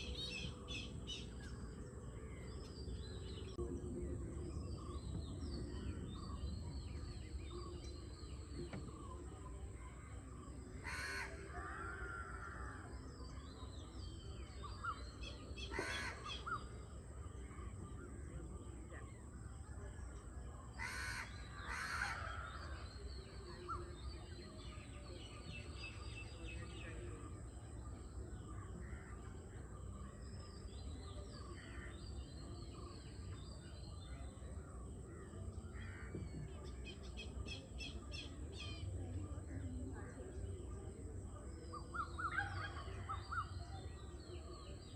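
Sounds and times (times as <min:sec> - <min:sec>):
crows cawing: 0:10.8 - 0:12.7, 0:20.8 - 0:22.4.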